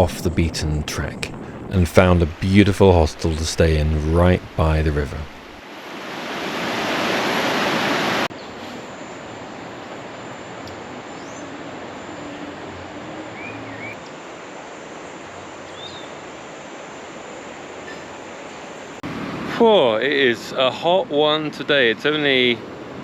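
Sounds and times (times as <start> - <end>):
river water rushing: 5.3 - 8.3.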